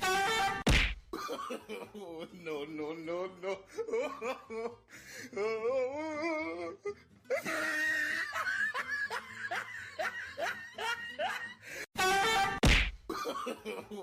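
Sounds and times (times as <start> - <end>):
person laughing: 7.3 - 11.7.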